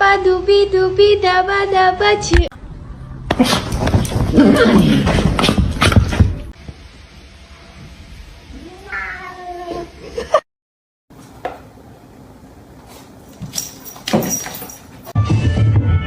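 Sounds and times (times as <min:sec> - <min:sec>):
cat meowing: 0:08.6 - 0:09.8.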